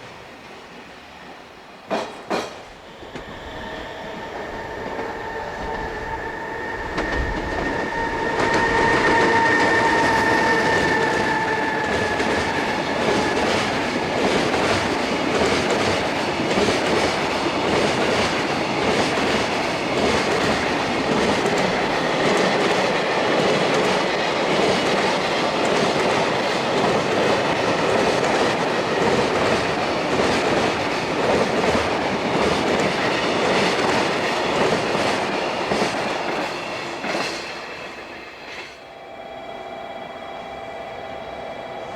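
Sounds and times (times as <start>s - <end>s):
rolling rumble of train wagons: 1.8s - 41.9s
locomotive whine: 2.6s - 23.3s, 36.0s - 41.9s.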